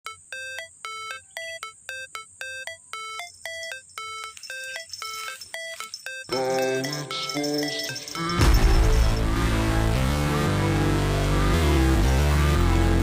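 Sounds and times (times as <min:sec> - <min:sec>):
repeating bright synth tone: 0:00.1 - 0:09.7
electronic music: 0:00.1 - 0:13.0.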